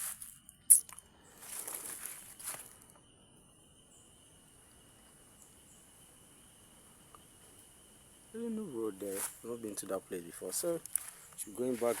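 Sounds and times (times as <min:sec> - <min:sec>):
insects droning: 0:00.0 - 0:12.0
rustling: 0:09.0 - 0:09.6, 0:10.6 - 0:12.0.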